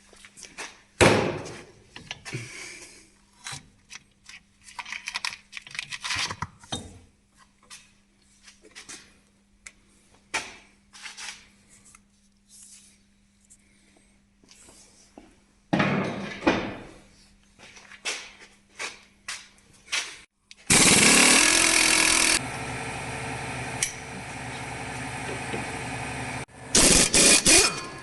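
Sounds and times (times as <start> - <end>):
power tool running: 20.6 - 28.0.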